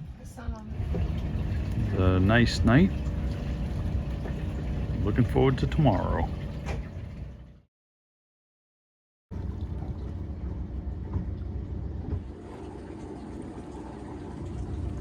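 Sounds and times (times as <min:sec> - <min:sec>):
wind: 0:00.0 - 0:07.4
boat engine rumble: 0:00.0 - 0:07.7
water: 0:00.0 - 0:07.7, 0:09.3 - 0:15.0.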